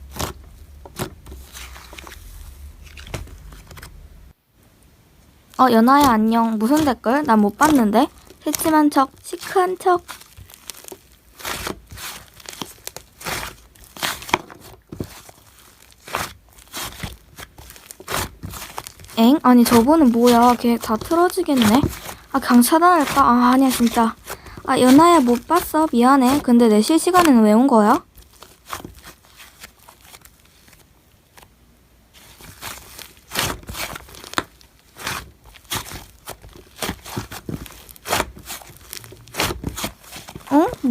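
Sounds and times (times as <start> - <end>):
hands squishing slime: 0.0 - 4.0, 5.5 - 31.4, 32.2 - 40.9.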